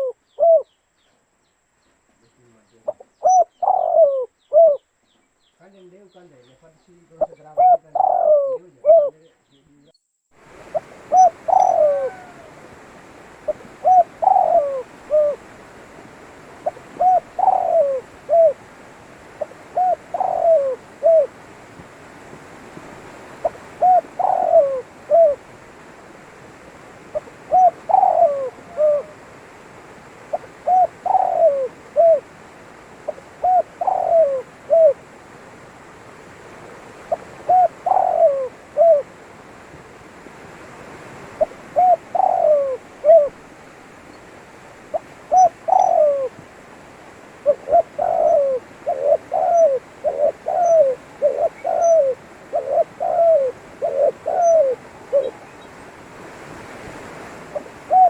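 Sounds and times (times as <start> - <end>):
dove cooing: 0.0 - 0.7, 2.9 - 4.8, 7.2 - 9.3, 10.5 - 35.6, 37.0 - 39.7, 41.3 - 43.5, 44.8 - 55.8, 57.5 - 58.0
faint steady hiss: 0.0 - 58.0.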